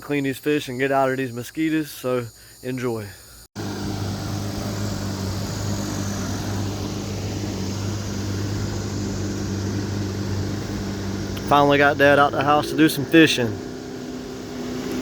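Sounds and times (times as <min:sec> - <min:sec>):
outboard motor running: 0:03.6 - 0:15.0.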